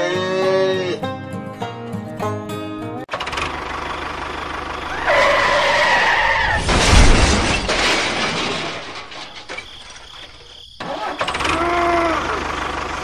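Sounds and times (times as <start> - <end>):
tractor motor buzzing: 3.1 - 6.2, 10.8 - 13.0
high squealing tone: 4.9 - 8.1
loud rushing crash with rumble: 5.0 - 9.9.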